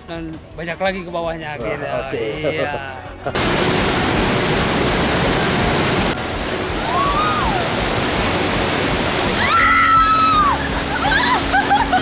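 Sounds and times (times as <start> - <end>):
rapids rushing over rocks: 3.4 - 12.0.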